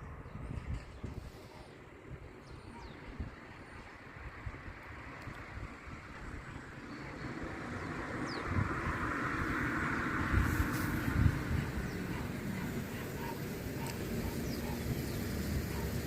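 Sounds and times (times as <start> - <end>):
diesel train passing: 0.0 - 16.0.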